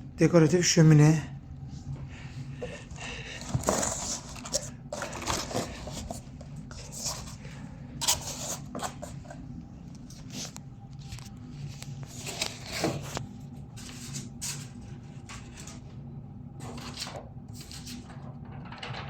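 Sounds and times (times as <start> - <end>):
low hum: 0.0 - 19.0
cardboard rustling and scraping: 2.6 - 9.4, 10.0 - 15.9.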